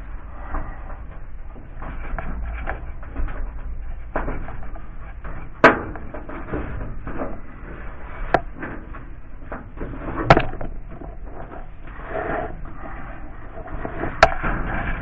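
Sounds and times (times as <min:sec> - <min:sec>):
rustling and handling noise: 0:00.0 - 0:15.0
sharp knocks: 0:01.7 - 0:07.4, 0:08.3 - 0:11.1.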